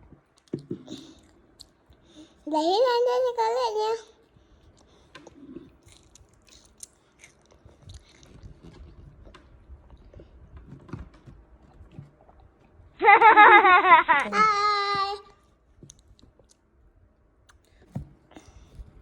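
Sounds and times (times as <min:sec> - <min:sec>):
child chewing crunchy snack: 0:00.1 - 0:02.4, 0:04.2 - 0:12.9
child calling out: 0:14.2 - 0:15.3.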